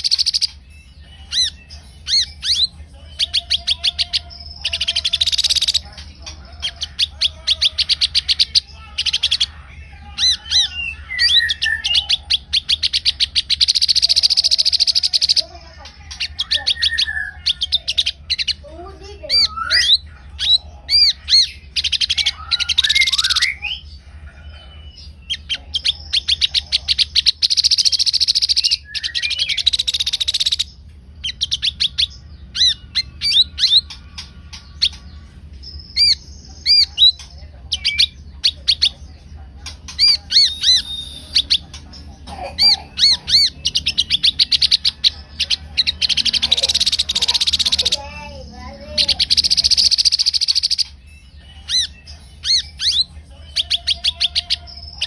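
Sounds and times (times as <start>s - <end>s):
songbird chirping: 0.0s - 55.0s
buzzy rasping bird calls: 1.3s - 5.8s, 25.3s - 35.0s, 42.3s - 51.0s.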